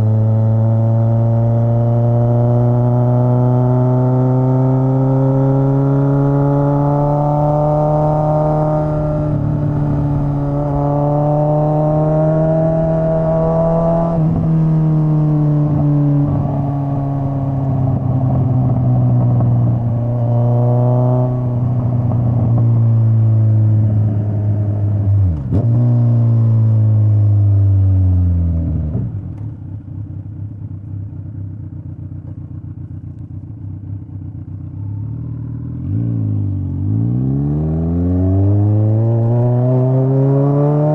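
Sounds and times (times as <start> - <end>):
motorcycle exhaust revving: 0.0 - 28.8.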